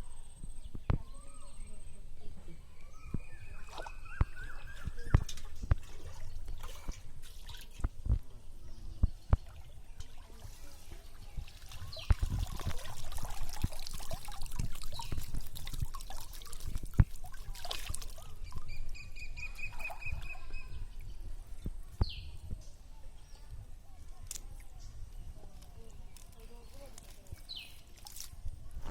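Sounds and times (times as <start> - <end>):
water trickling and dripping: 2.8 - 21.7.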